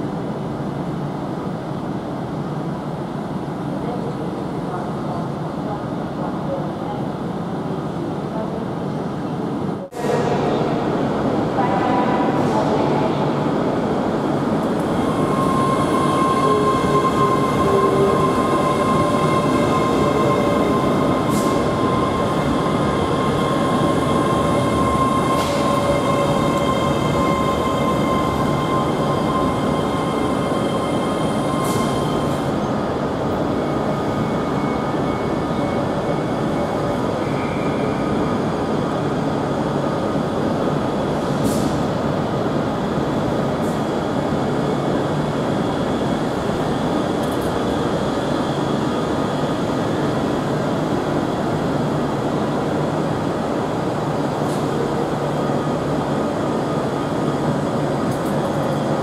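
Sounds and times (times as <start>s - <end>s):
rumble of wheels on rail: 0.0s - 59.0s
high wheel squeal: 15.0s - 32.3s.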